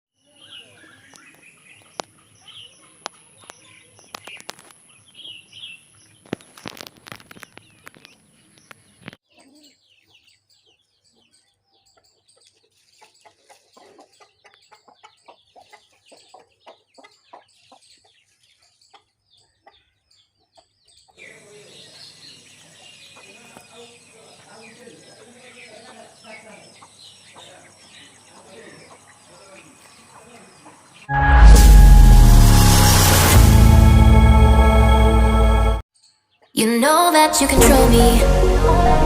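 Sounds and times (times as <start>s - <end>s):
chickens clucking: 11.9s - 21.2s, 25.2s - 31.0s.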